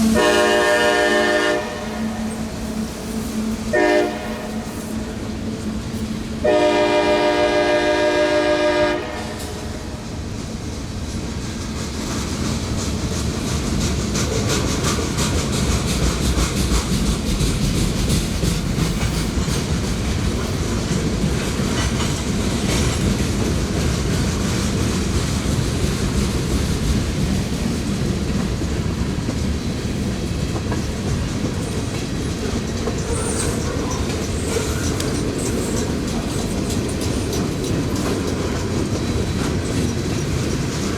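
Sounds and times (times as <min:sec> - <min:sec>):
locomotive air horn blast: 0:00.0 - 0:05.5, 0:06.4 - 0:10.0
train wheels clattering over rails: 0:00.0 - 0:40.9.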